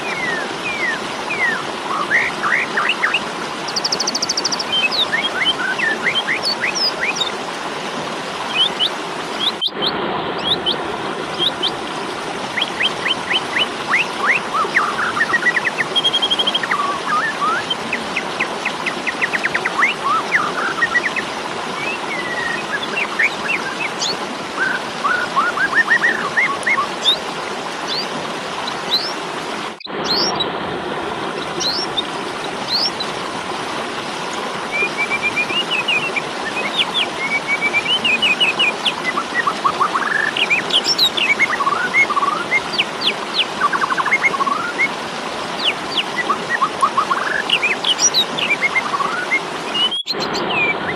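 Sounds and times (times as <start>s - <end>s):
starling whistles and rattling calls: 0.2s - 7.3s, 34.8s - 44.9s, 45.6s - 50.8s.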